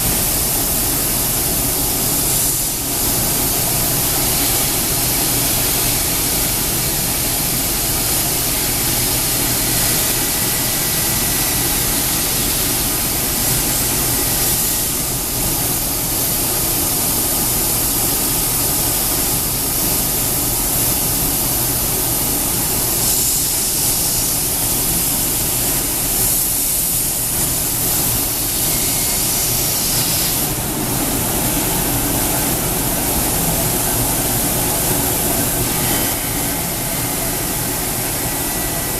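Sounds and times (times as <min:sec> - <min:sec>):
router machine hissing and humming: 0:31.6 - 0:38.9.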